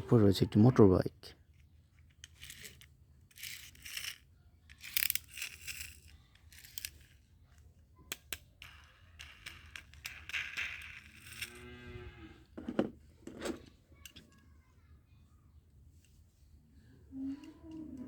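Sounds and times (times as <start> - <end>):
plastic toy rustling and scraping: 1.4 - 14.7.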